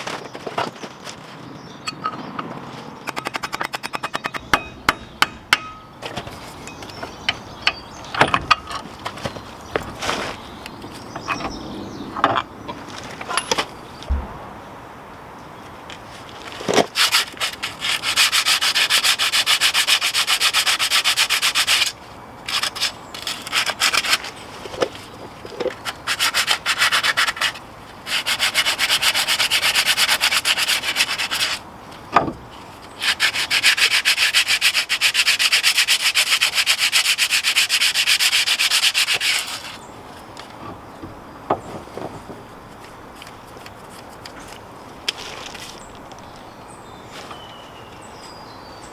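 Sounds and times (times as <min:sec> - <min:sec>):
knocks: 0:14.1 - 0:14.8.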